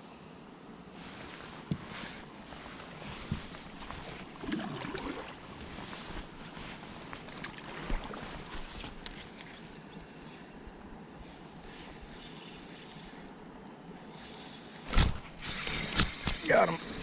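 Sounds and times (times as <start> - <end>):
water washing around kayak: 1.0 - 9.5.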